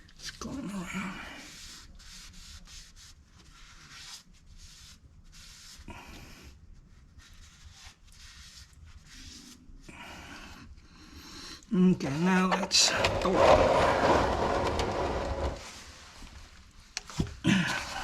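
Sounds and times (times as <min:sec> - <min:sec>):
drain plug scraping by hand: 0:12.4 - 0:15.8.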